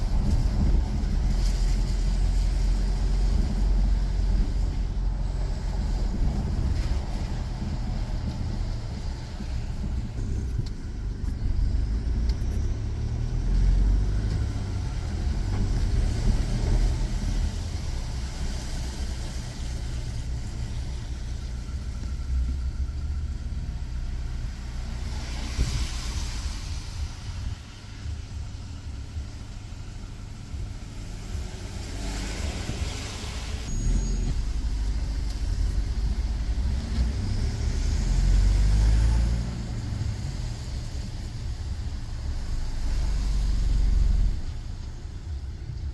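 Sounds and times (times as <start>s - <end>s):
vehicle engine and road rumble: 0.0s - 45.9s
tyre and air hiss: 24.7s - 44.9s.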